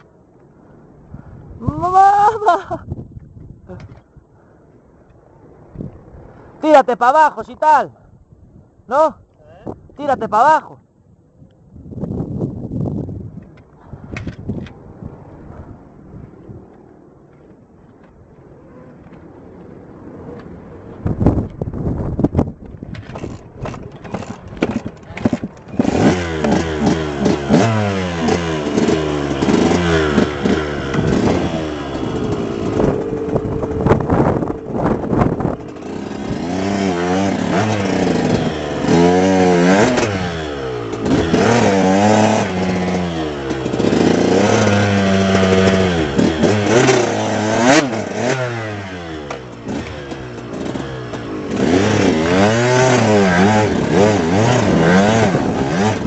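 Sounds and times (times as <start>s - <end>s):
motorcycle engines revving: 23.1s - 56.0s.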